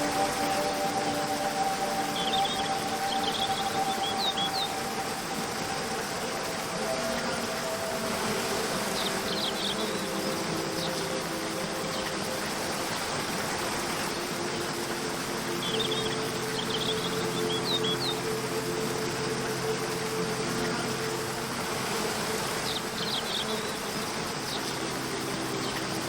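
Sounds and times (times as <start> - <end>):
bird chirps: 0.0 - 4.9, 15.6 - 18.2
soft background music: 0.0 - 26.0
waterfall rushing: 0.0 - 26.0.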